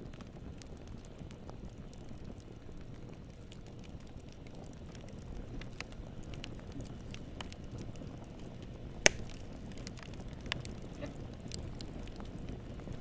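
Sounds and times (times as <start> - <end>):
low rumble of flames: 0.0 - 13.0
wood fire crackling: 0.0 - 13.0
loud sharp pop: 9.0 - 9.3.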